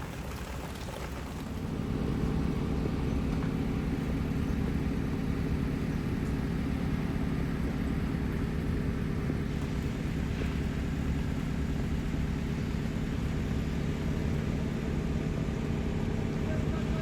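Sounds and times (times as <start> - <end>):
engine low rumble: 0.0 - 17.0.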